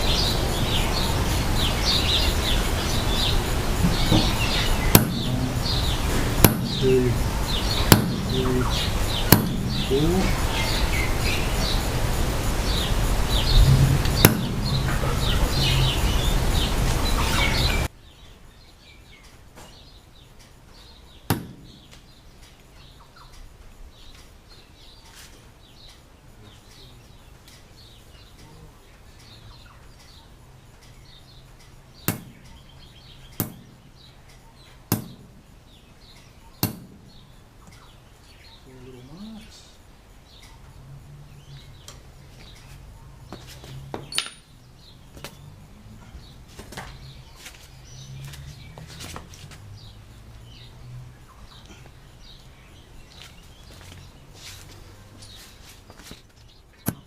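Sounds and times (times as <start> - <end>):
loud steady noise: 0.0 - 17.9
birds chirping: 0.0 - 57.0
hammer tapping metal punch: 5.0 - 5.4, 6.4 - 6.8, 9.3 - 9.9, 44.1 - 44.5.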